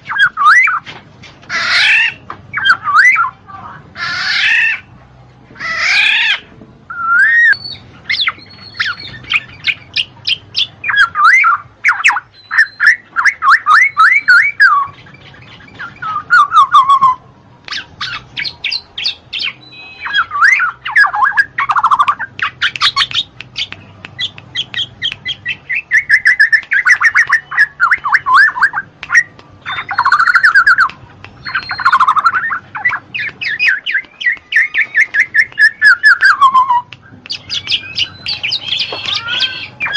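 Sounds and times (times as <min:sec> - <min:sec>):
bird chirping and whistling: 0:00.0 - 0:00.8, 0:01.5 - 0:03.4, 0:05.8 - 0:39.9.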